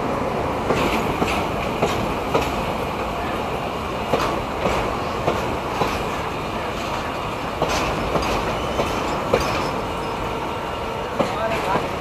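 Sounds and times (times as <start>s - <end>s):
train wheels rumbling on rail: 0.0s - 12.0s
wheels clacking over rail joints: 0.6s - 3.3s, 4.0s - 12.0s.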